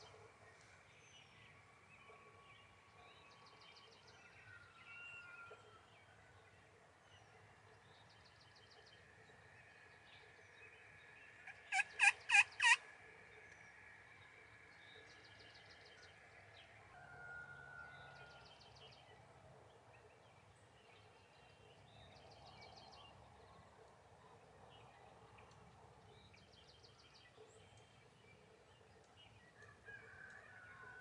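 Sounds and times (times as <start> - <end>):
turkey yelping: 11.5 - 12.8.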